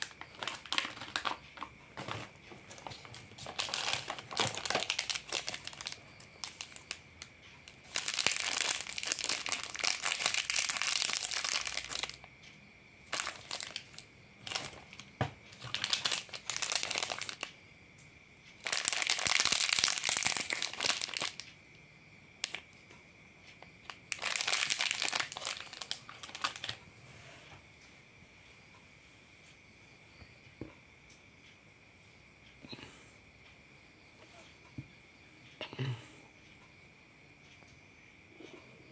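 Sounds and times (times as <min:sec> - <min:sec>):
plastic snack packets crinkling: 0:00.0 - 0:12.3, 0:13.0 - 0:17.6, 0:18.6 - 0:21.5, 0:22.4 - 0:22.7, 0:23.6 - 0:26.8.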